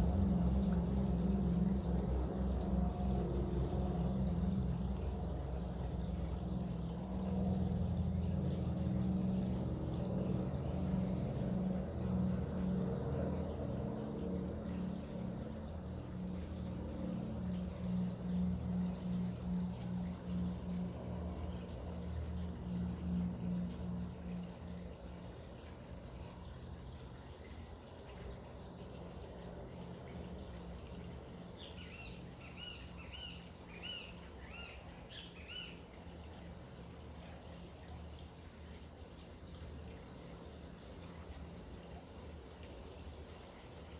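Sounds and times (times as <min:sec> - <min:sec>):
pulsing low hum: 0:00.0 - 0:26.6
water pouring and trickling: 0:00.0 - 0:43.9.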